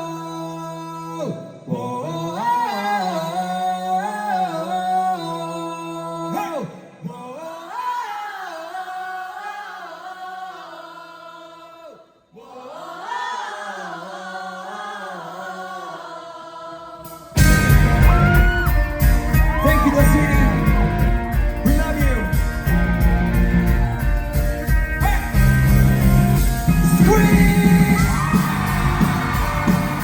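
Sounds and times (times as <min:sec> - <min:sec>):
person singing: 0:17.2 - 0:25.7.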